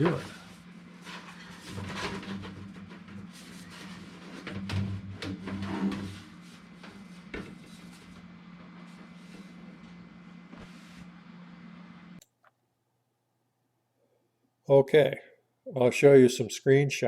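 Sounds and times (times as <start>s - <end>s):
rubbing and scraping: 0.0s - 11.2s
steady low hum: 0.0s - 13.5s
click: 12.2s - 12.6s.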